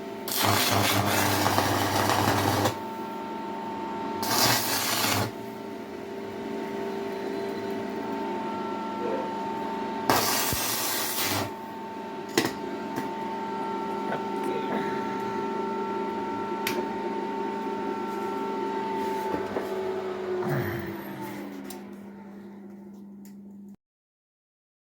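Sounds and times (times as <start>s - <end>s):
cooling fan: 0.0s - 23.8s
welding machine hum and whine: 0.0s - 23.8s
harsh hissing burst: 10.1s - 11.5s.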